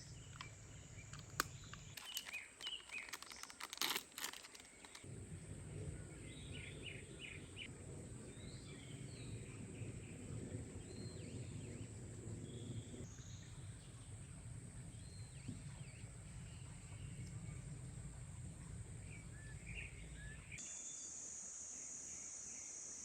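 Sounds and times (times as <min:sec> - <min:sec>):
birds chirping: 0:00.0 - 0:05.1, 0:08.3 - 0:20.6
crinkling and tapping: 0:00.0 - 0:05.1.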